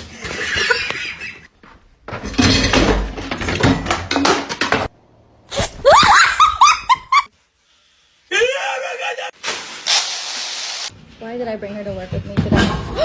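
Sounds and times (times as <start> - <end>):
objects falling and breaking: 9.4 - 10.9.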